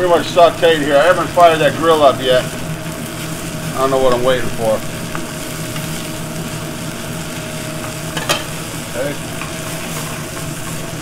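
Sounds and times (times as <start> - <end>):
chicken sizzling in a pan: 0.0 - 11.0
steady hum: 0.0 - 11.0.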